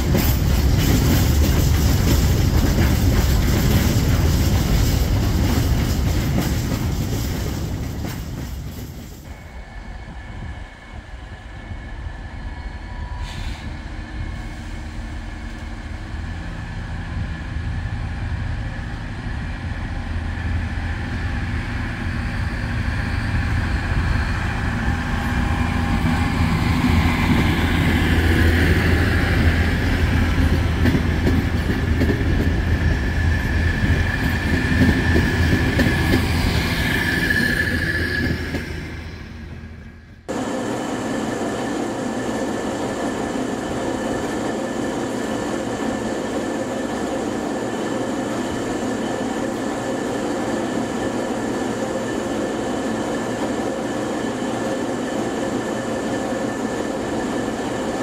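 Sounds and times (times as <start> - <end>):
train rumbling: 0.0 - 58.0
wheel squeal on rails: 33.4 - 39.1.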